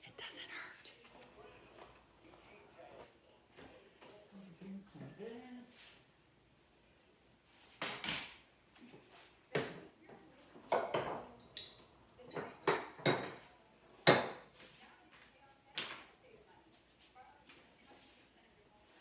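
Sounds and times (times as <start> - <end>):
dishes clattering: 9.5 - 14.5.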